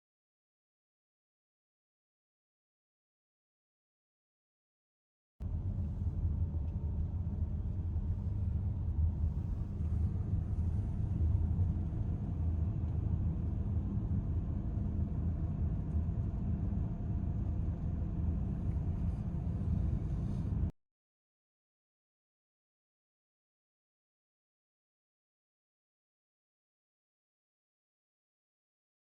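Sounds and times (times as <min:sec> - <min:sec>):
car road and engine noise: 0:05.4 - 0:20.7.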